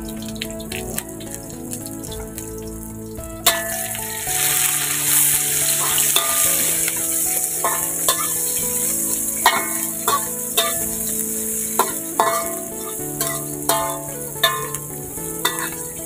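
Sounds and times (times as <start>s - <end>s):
spices frying in hot oil: 0.0s - 16.0s
metal spatula clinking on wok: 6.2s - 6.5s, 7.6s - 8.5s, 9.5s - 10.9s, 11.8s - 15.8s.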